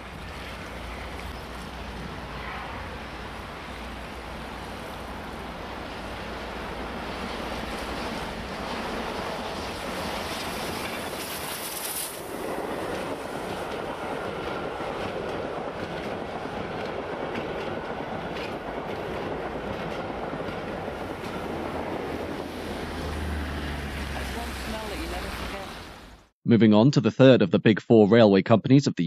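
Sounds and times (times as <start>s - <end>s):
train wheels clattering on rails: 5.9s - 22.5s
steam hiss: 9.1s - 13.8s.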